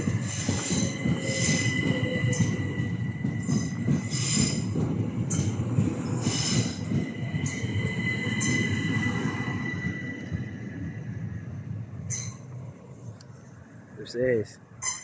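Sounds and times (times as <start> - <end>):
wheel squeals: 0.0 - 10.7, 14.8 - 15.0
train whine and rumble: 0.0 - 15.0.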